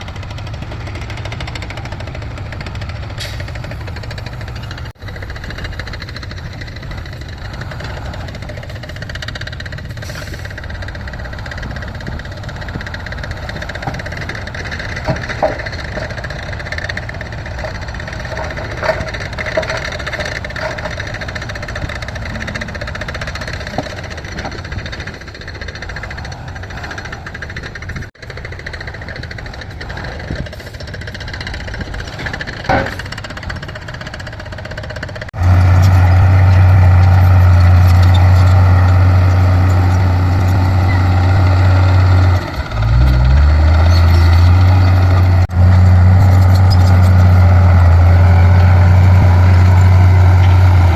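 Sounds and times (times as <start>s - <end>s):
heavy machinery engines running: 0.0s - 50.9s
metal clanks: 0.9s - 50.9s.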